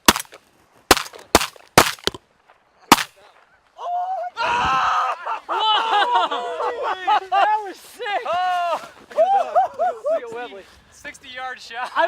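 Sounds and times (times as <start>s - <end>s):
shotgun blasts: 0.0s - 2.2s, 2.9s - 3.2s.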